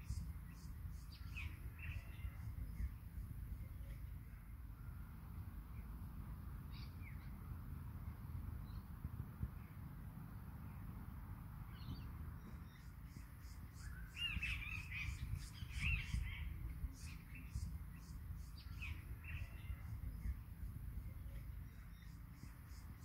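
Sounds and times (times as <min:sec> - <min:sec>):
steady low rumble: 0:00.0 - 0:23.0
birds calling: 0:11.7 - 0:20.4.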